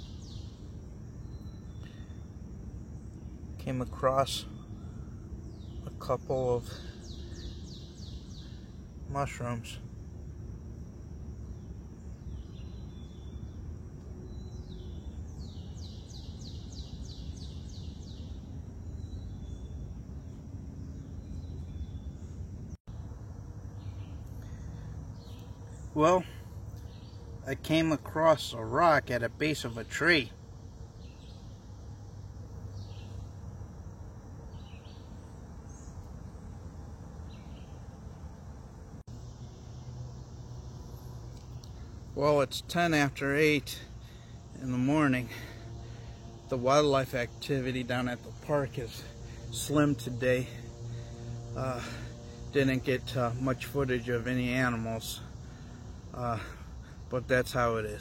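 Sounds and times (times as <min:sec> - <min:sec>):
faint bird chirps: 0:00.0 - 0:10.0, 0:11.4 - 0:58.0
steady low hum: 0:00.0 - 0:58.0
songbird whistling and singing: 0:01.2 - 0:02.3.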